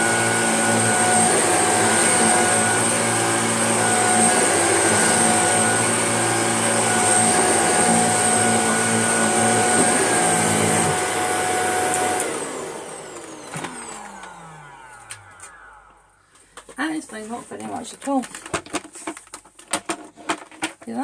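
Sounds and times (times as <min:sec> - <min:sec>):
motor winding down whine: 0:00.0 - 0:16.8
vacuum cleaner running: 0:00.0 - 0:18.0.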